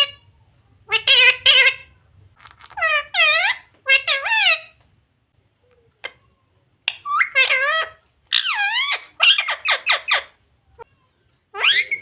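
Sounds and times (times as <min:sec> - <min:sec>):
parrot squeaky wavering calls: 0:00.9 - 0:04.8, 0:06.8 - 0:10.9, 0:11.5 - 0:12.0.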